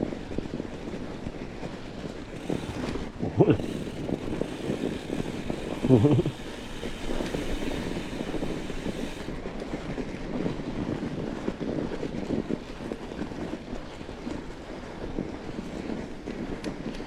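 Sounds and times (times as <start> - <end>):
bike tyres rolling over snow: 0.0 - 17.0
small crackles and rattles: 0.0 - 17.0
wind noise on microphone: 0.0 - 17.0.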